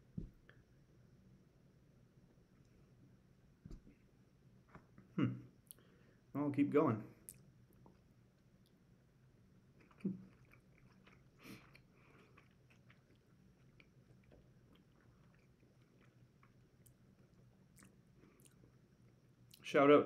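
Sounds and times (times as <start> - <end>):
faint chewing: 7.2 - 8.8, 9.7 - 19.6.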